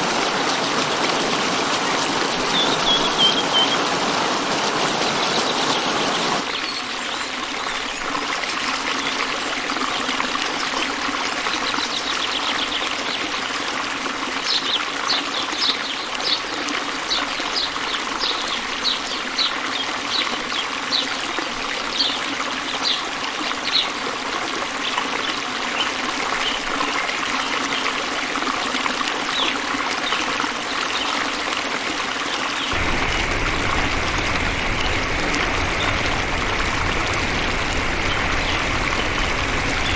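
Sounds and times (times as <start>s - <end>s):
bird chirping: 2.4s - 3.9s, 32.7s - 39.9s
water trickling: 32.7s - 39.9s.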